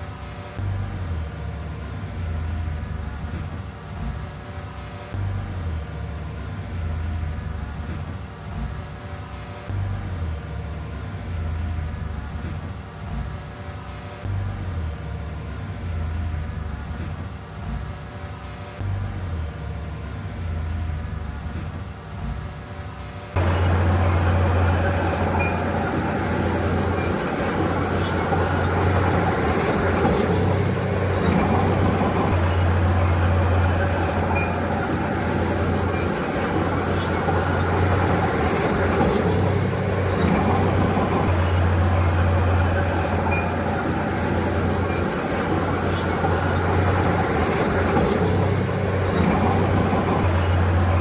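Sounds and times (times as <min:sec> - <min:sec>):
heavy diesel machinery droning: 0:23.4 - 0:51.0
mechanical clatter: 0:23.4 - 0:51.0.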